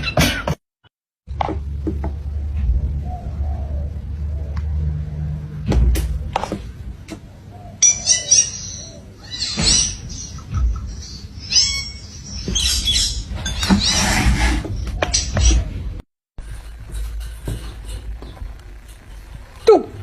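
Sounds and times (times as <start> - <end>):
parrot chirping: 7.8 - 13.6.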